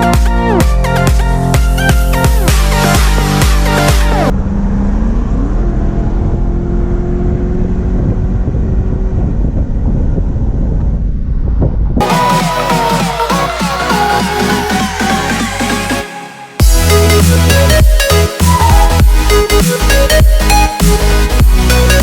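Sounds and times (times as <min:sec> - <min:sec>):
electronic dance music: 0:00.0 - 0:04.3, 0:12.0 - 0:22.0
car engine rumbling: 0:04.3 - 0:12.1.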